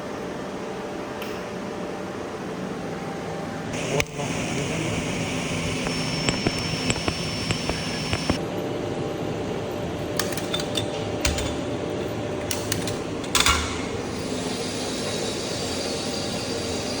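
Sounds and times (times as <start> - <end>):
machine hum and hiss: 0.0 - 17.0
small metallic clicks: 5.8 - 8.4.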